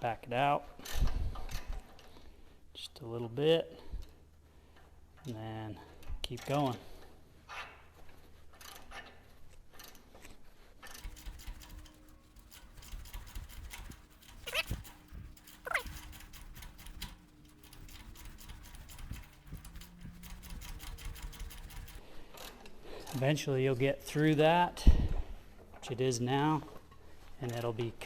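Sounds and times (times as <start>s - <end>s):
tap cutting threads clicking: 11.0s - 22.0s.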